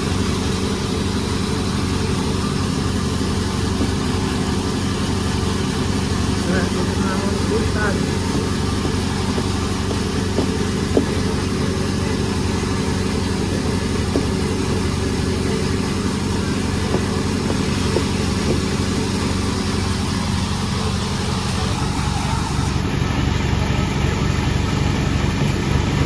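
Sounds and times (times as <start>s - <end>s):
sawmill machinery running: 0.0s - 26.0s
short knocks: 7.5s - 19.2s.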